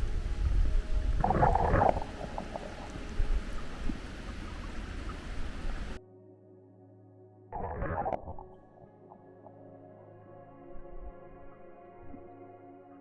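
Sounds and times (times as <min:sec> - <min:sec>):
underwater stream current rumbling: 0:00.0 - 0:06.0
water bubbling gurgle: 0:00.0 - 0:06.0, 0:07.6 - 0:08.6.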